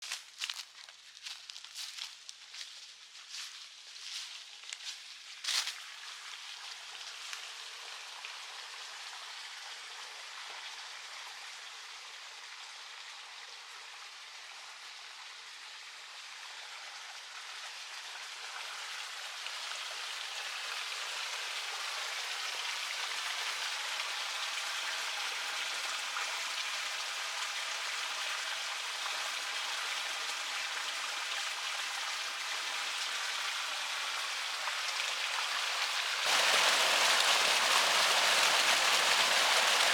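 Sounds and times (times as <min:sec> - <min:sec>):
river water rushing: 0:36.2 - 0:39.9.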